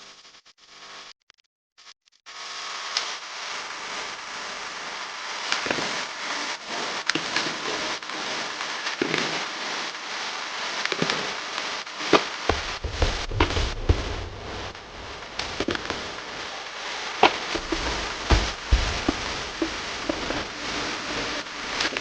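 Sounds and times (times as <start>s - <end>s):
crackling and rustling: 12.0s - 22.0s
low rumble: 12.5s - 16.6s, 17.4s - 21.9s.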